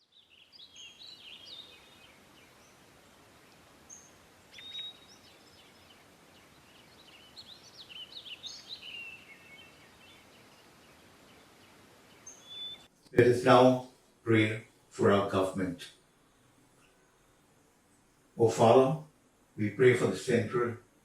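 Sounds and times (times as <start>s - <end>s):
birds chirping: 0.0s - 14.5s
faint steady hiss: 0.0s - 21.0s.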